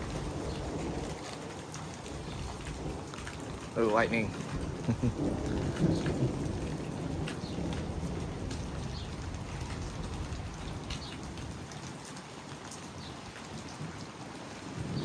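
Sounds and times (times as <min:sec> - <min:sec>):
thunder rumble: 0:00.0 - 0:11.7
rain falling: 0:00.0 - 0:15.0.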